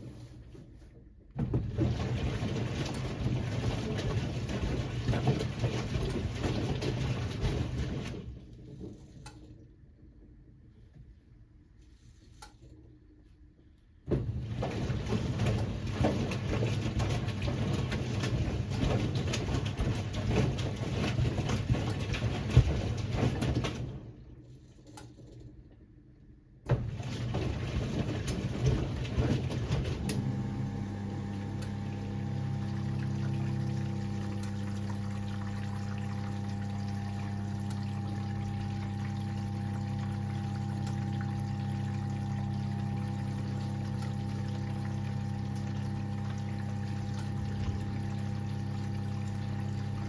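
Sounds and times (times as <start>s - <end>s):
click: 9.2s - 9.4s, 24.9s - 25.1s
washing machine drum turning: 14.1s - 23.9s, 26.7s - 50.0s
water sloshing: 14.2s - 24.2s.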